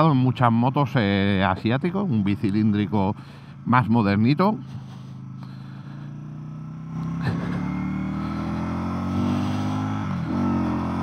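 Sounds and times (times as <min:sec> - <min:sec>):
motorcycle engine running: 0:02.4 - 0:11.0.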